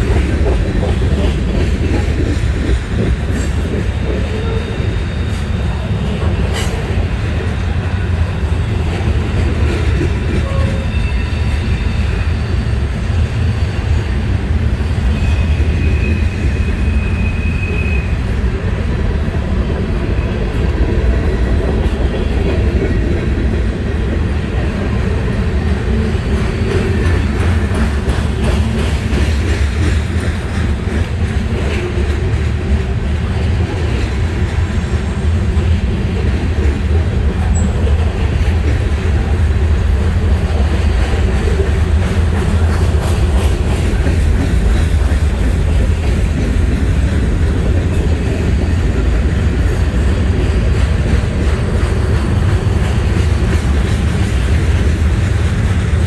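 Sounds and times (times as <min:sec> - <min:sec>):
steel wheels rumbling on rail: 0:00.0 - 0:56.0
high wheel squeal: 0:10.4 - 0:18.2
clacking over rail joints: 0:26.3 - 0:34.6, 0:35.5 - 0:56.0.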